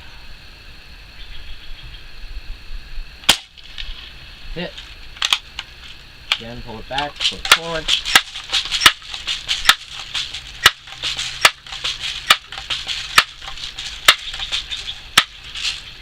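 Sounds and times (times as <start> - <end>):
air rifle pump strokes clicking: 7.2 - 15.9.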